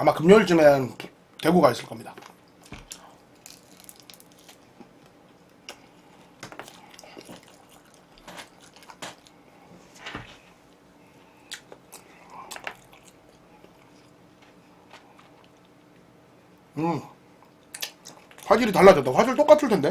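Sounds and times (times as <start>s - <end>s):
person chewing crunchy chicken: 2.6s - 5.0s, 5.6s - 9.5s, 11.3s - 15.8s.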